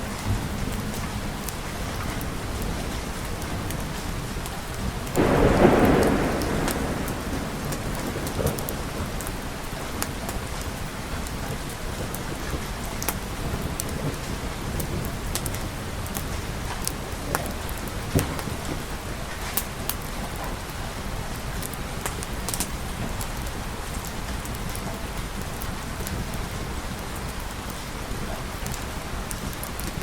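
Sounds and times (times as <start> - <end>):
steady rain: 0.0 - 30.0
thunderclap rumbling: 5.1 - 12.6.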